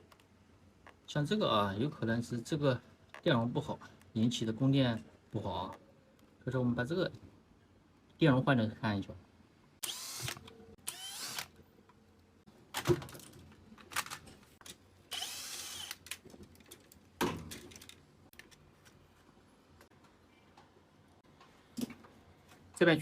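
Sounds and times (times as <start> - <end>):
power drill whining: 9.8 - 11.5, 15.1 - 16.0.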